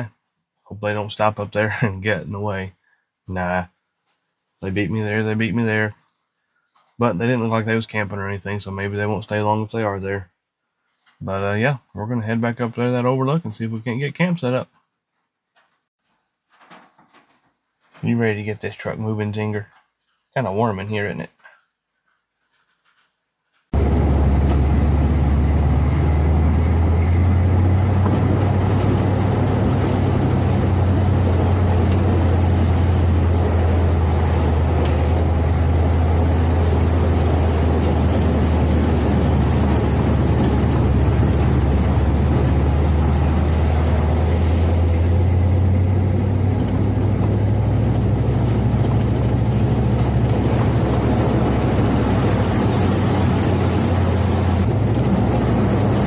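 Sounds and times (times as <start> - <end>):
pickup engine droning: 23.7 - 56.0.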